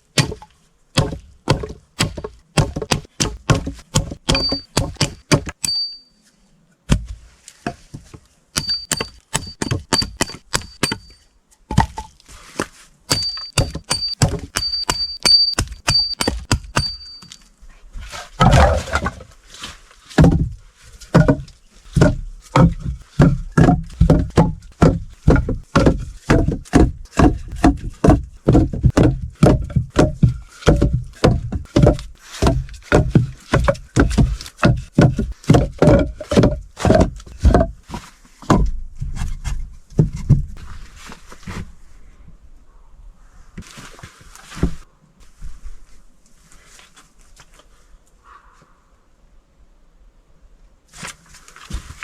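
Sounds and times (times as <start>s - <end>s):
hand tool hard blows: 2.0s - 6.0s, 8.6s - 11.2s, 13.1s - 17.4s.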